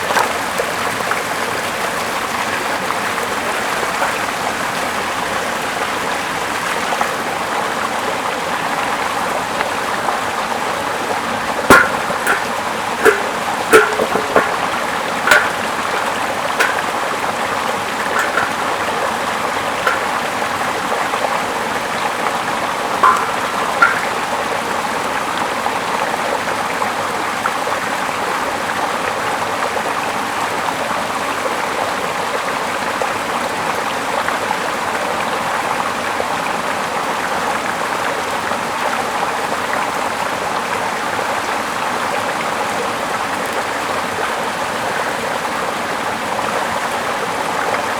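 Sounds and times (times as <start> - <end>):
stream flowing: 9.6 - 25.6
short sharp plinks: 11.7 - 17.3, 18.0 - 19.0, 19.9 - 20.4, 23.0 - 24.5.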